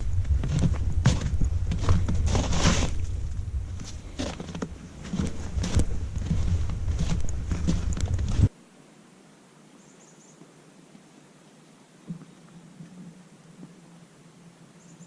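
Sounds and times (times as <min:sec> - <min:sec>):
footsteps crunching: 0:00.0 - 0:08.5
wind rumble on microphone: 0:00.0 - 0:08.5.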